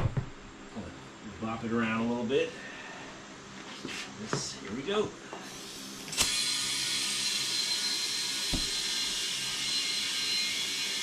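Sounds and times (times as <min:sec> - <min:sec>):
dull thump: 0:08.5 - 0:08.7.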